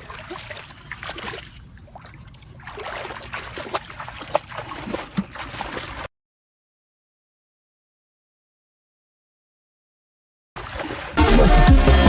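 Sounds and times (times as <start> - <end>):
water splashing and sloshing: 0.0 - 6.1, 10.6 - 12.0.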